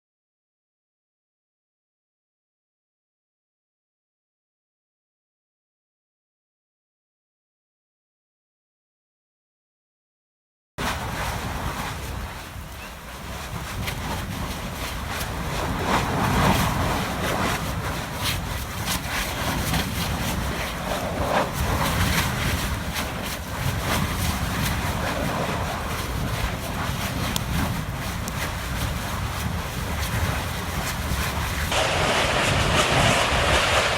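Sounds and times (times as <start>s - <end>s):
lava popping and crackling: 10.8s - 33.9s
venting gas rushing: 10.8s - 33.9s.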